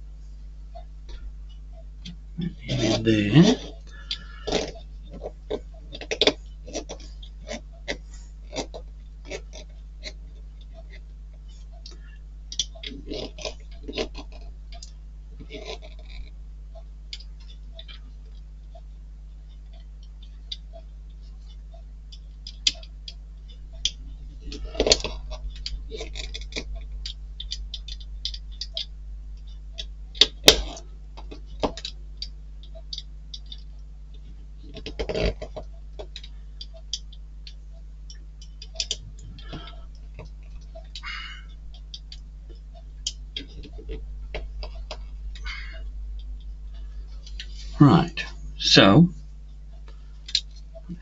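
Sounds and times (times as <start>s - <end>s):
low electrical hum: 0.0s - 51.0s.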